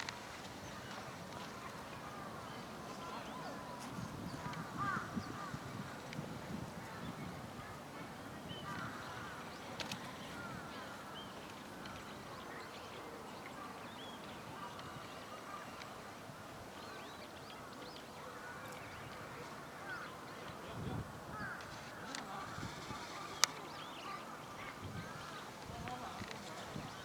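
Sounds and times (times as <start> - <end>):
background hiss: 0.0 - 13.7.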